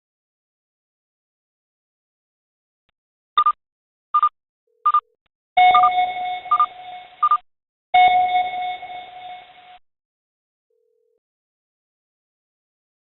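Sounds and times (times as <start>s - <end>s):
short electronic beeps: 4.2s - 7.4s, 8.0s - 9.8s
long held alarm tones: 5.6s - 7.3s, 8.0s - 9.8s.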